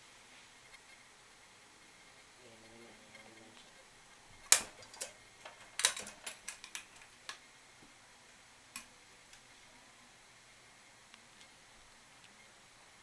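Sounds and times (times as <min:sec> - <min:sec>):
plastic toy clicking and knocking: 0:04.5 - 0:07.4.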